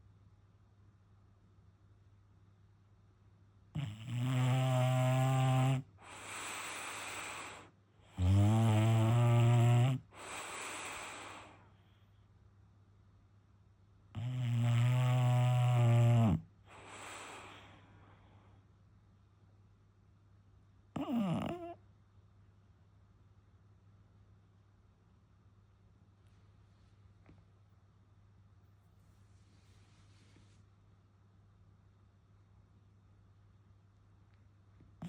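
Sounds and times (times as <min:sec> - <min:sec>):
dog breathy exhale: 0:06.0 - 0:07.8, 0:10.1 - 0:11.8, 0:16.7 - 0:18.4.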